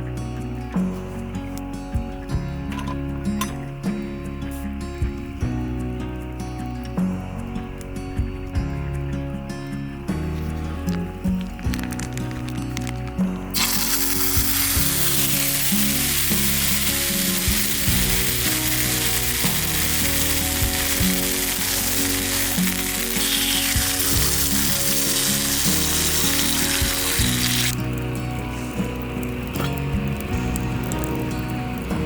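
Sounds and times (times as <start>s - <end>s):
food sizzling in a frying pan: 13.6s - 32.0s.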